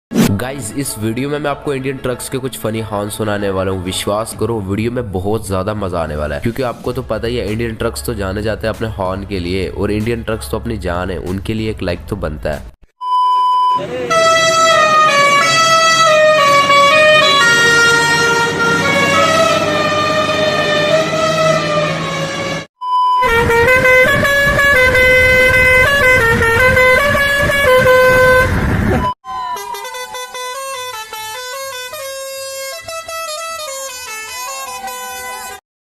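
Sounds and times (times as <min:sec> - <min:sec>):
musical truck horn tune: 0:13.8 - 0:35.6.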